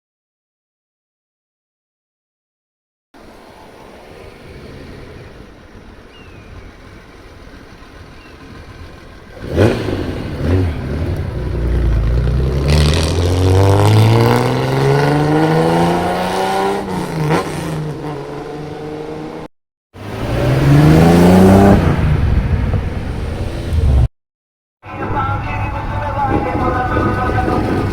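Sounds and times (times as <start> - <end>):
car exhaust revving: 3.2 - 24.1.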